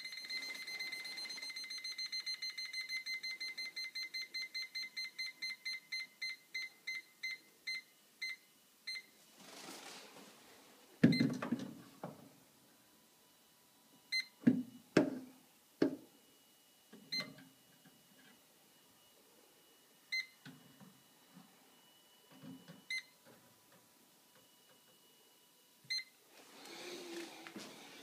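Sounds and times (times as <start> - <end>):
leak detector high beeps: 0.0 - 9.1.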